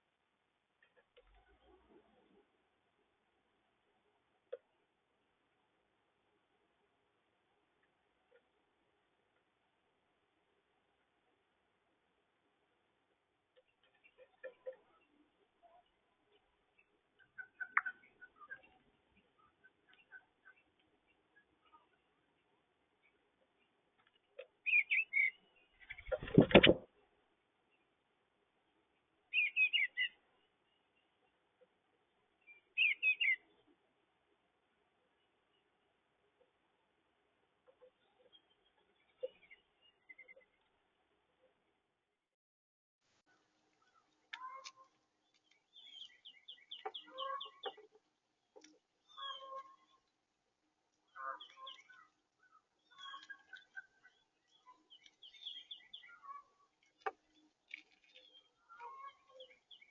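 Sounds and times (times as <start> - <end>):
bird chirping: 13.6 - 26.8, 29.3 - 31.4, 32.3 - 33.7, 37.7 - 40.8, 43.8 - 50.1, 51.0 - 59.9.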